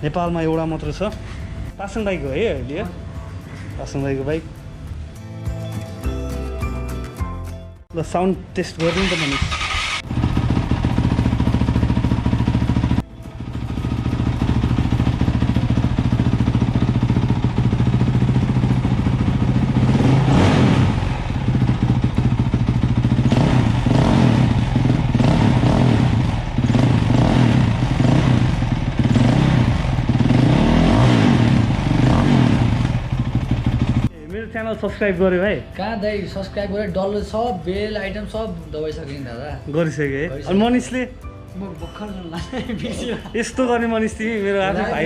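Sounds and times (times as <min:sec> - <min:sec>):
motorcycle engine revving: 0:08.8 - 0:34.1.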